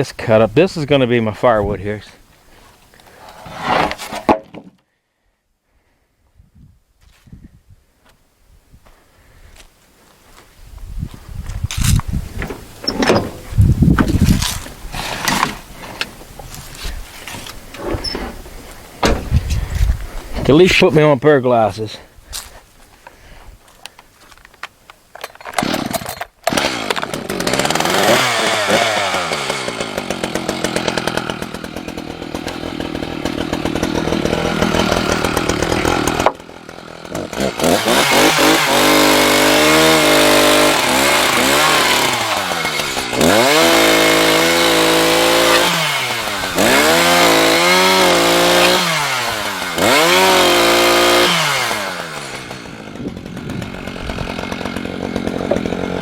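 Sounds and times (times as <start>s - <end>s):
chainsaw cutting wood: 2.9s - 4.8s, 11.7s - 20.4s, 25.2s - 56.0s.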